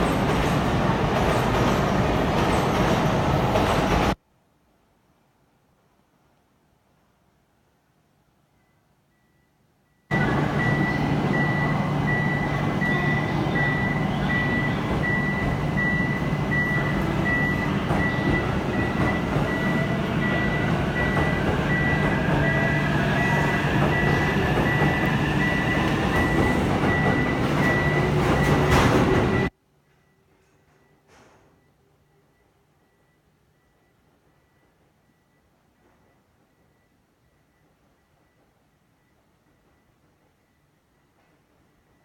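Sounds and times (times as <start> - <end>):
train rumble and hum: 0.0 - 4.2, 10.1 - 29.5
high electronic beep: 9.2 - 30.2.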